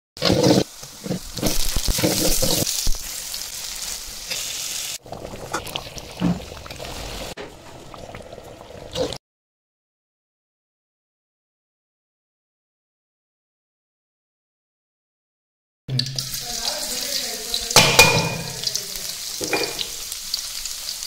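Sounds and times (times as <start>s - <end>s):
food sizzling in a pan: 0.2s - 9.2s, 15.9s - 21.0s.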